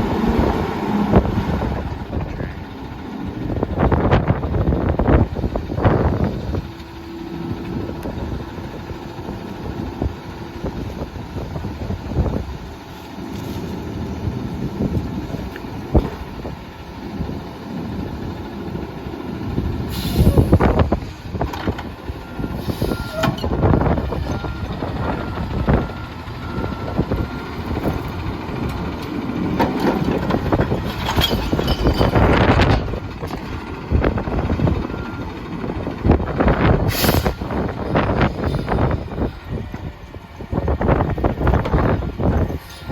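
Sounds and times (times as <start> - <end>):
garbage truck engine running: 0.0 - 42.9
wind buffeting microphone: 0.0 - 42.9.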